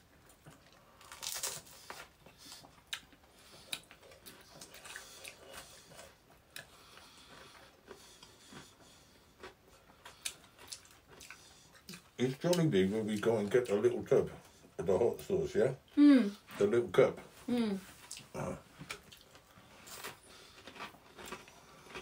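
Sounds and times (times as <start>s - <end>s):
wet chewing mouth sounds: 0.2s - 14.7s, 18.0s - 22.0s
crisp food crunches: 0.9s - 2.1s.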